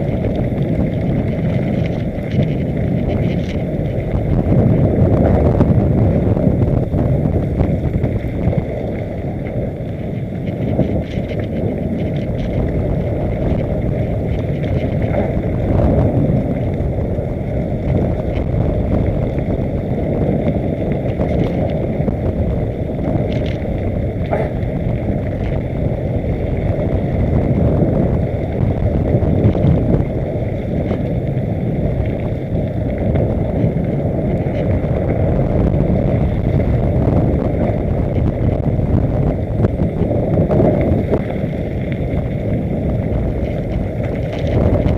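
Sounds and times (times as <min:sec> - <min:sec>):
small clicks and rattles: 0:00.0 - 0:04.0, 0:08.0 - 0:15.6, 0:21.0 - 0:21.8, 0:23.1 - 0:25.7, 0:43.1 - 0:44.9
wind on microphone: 0:00.0 - 0:44.9.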